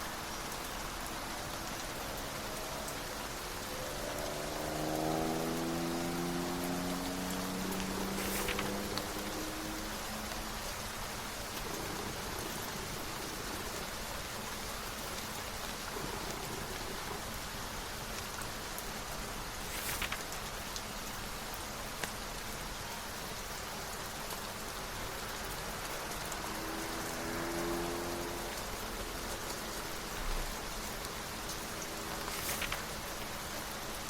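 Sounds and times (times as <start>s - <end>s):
steady rain: 0.0s - 34.0s
brief rustle: 7.9s - 9.2s, 19.6s - 20.6s, 32.2s - 33.3s
light ticks: 22.0s - 22.2s.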